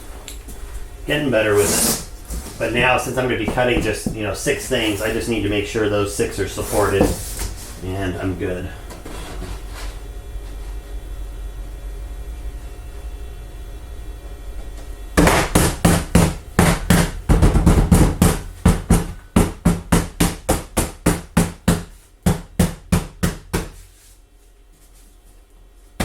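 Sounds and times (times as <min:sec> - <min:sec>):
low hum: 0:00.0 - 0:15.2.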